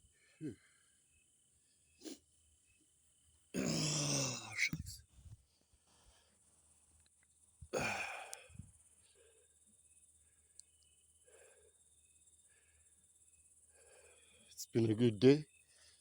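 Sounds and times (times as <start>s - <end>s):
person sighing heavily: 0.4s - 0.7s, 3.6s - 4.7s, 7.7s - 8.7s
soft breathing: 5.2s - 6.6s, 11.2s - 13.0s, 13.6s - 14.5s.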